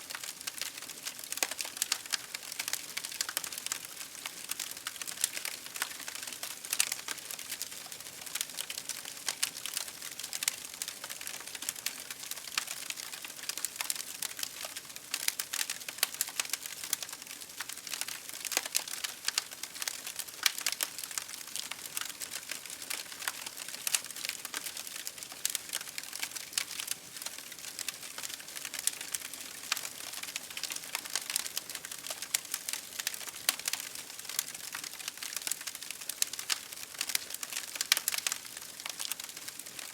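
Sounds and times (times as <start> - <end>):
campfire crackling and popping: 0.1 - 39.9.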